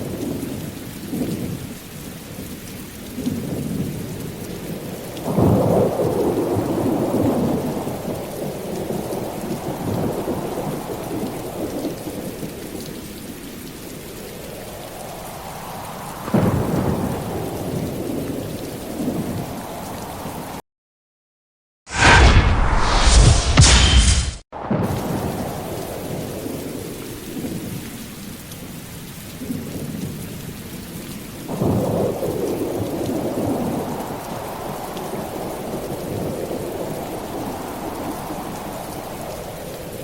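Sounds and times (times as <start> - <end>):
steady rain: 0.0 - 20.6, 24.6 - 40.0
rolling thunder: 16.2 - 19.7, 21.9 - 27.8.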